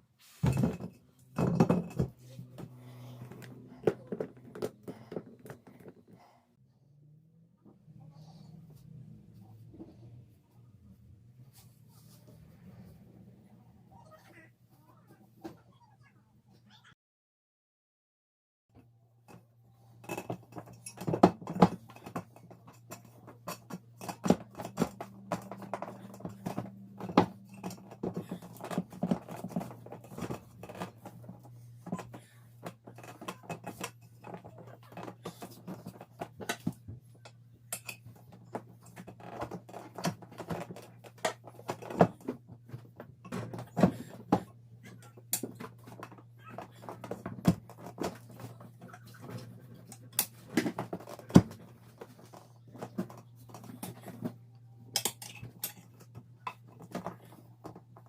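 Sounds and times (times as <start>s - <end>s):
tools clicking and knocking: 20.0s - 58.0s.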